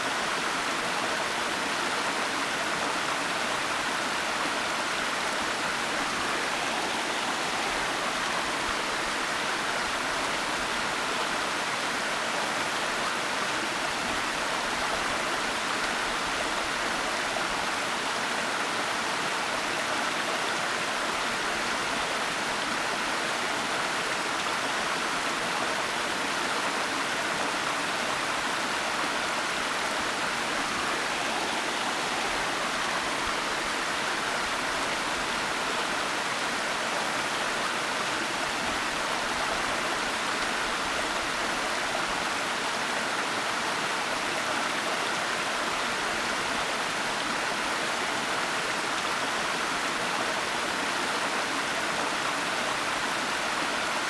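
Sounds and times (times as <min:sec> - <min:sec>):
waterfall rushing: 0:05.5 - 0:09.2, 0:28.3 - 0:36.1.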